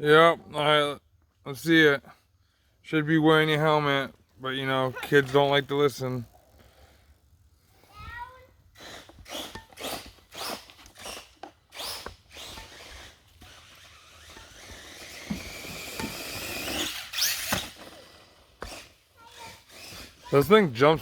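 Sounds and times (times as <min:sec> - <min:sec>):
electric motor whining: 0:08.8 - 0:20.4.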